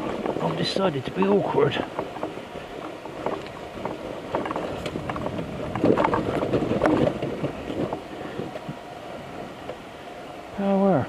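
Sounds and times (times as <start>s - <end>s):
motorcycle clattering down muddy track: 0.0s - 8.6s.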